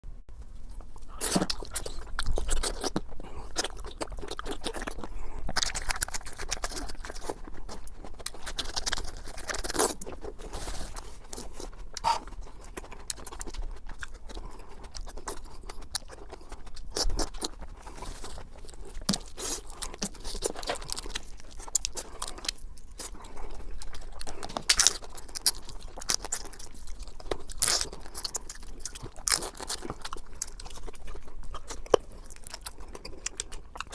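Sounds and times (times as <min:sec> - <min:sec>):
chewing and crunching food: 0:00.3 - 0:33.9
wet mouth sounds: 0:00.9 - 0:33.9.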